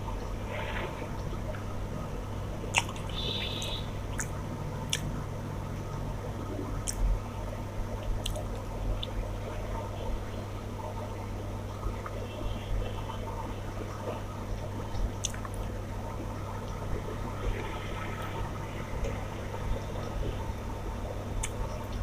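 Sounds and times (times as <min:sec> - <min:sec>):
steady low hum: 0:00.0 - 0:22.0
wet squishing and chewing: 0:02.7 - 0:03.1, 0:04.1 - 0:05.1, 0:06.8 - 0:07.1, 0:08.0 - 0:09.2, 0:14.9 - 0:15.7, 0:21.4 - 0:22.0.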